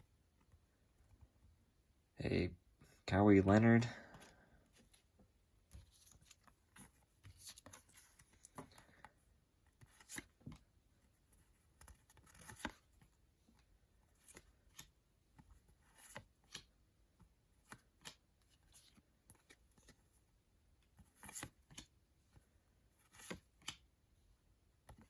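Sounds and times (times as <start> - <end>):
paper cards rustling and clicking: 4.2 - 20.2, 20.8 - 23.9, 24.8 - 25.0.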